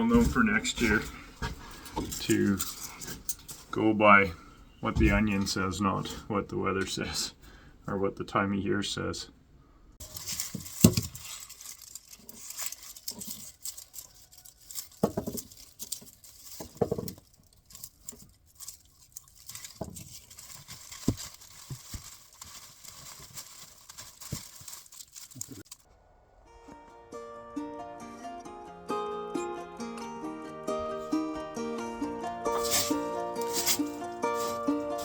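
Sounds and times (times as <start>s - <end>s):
dried onion skins rustling: 0.0s - 6.2s, 10.0s - 25.9s, 32.4s - 35.0s.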